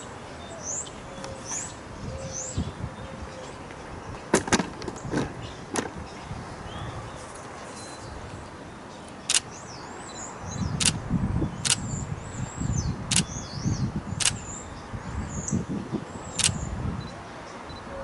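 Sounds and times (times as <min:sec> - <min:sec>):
small birds chirping: 0:04.9 - 0:18.0
camera shutter clicks: 0:09.3 - 0:09.5, 0:10.8 - 0:11.0, 0:11.6 - 0:11.8, 0:13.1 - 0:13.3, 0:14.2 - 0:14.4, 0:16.4 - 0:16.6.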